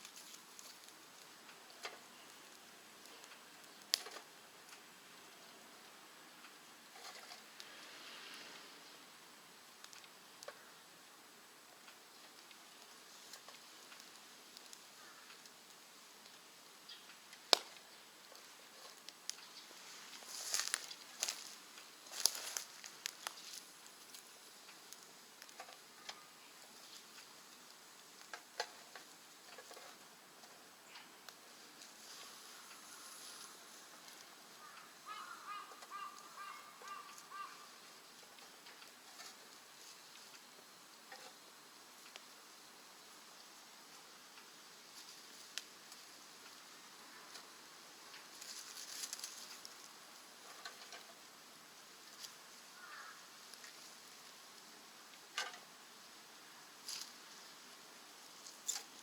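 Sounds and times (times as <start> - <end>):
wood fire crackling faintly: 0.0 - 59.0.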